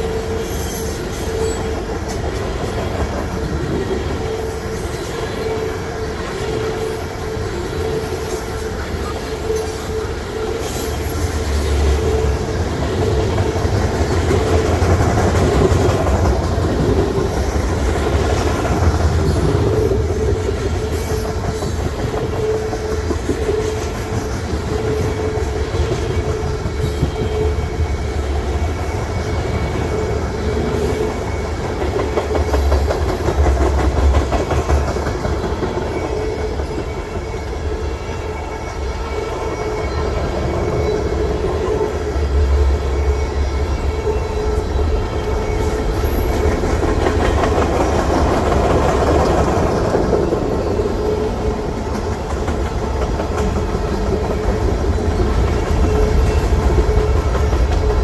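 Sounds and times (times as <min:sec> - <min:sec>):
ringing tone from wheels: 0:00.0 - 0:58.0
train wheels rumbling on rail: 0:00.0 - 0:58.0
wheels clicking over rail joints: 0:45.3 - 0:58.0.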